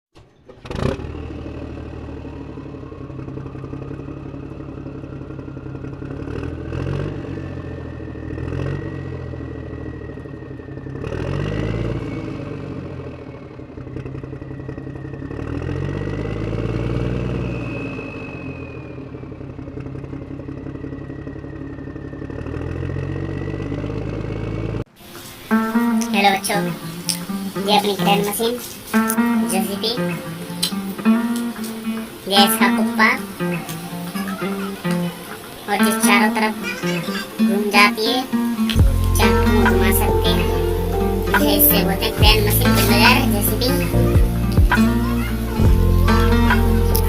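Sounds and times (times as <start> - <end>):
low hum: 0.2 - 35.9, 37.6 - 47.0
high whine: 25.0 - 47.0
motor running: 26.7 - 47.0.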